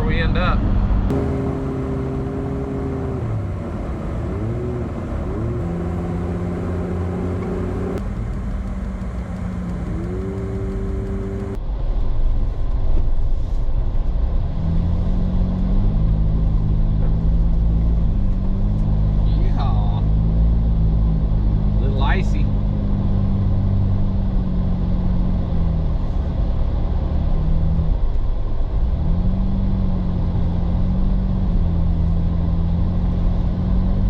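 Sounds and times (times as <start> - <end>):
truck engine changing gears: 1.1 - 11.6.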